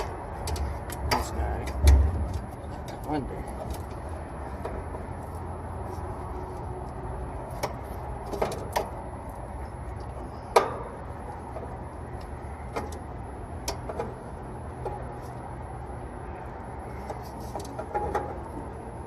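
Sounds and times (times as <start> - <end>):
copper tubing clicking and knocking: 0.0 - 4.0, 17.0 - 18.6
steady low hum: 0.0 - 19.0.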